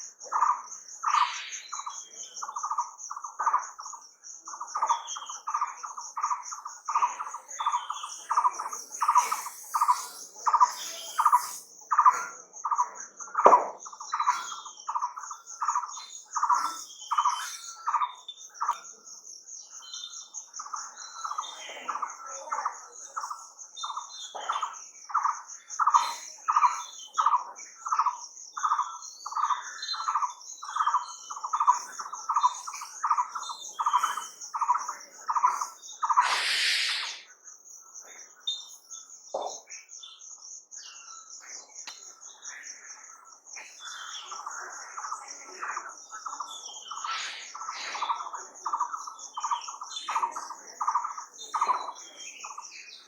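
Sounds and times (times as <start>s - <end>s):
high insect buzz: 8.3s - 11.7s, 35.5s - 37.3s
short rushing burst of noise: 36.2s - 37.2s.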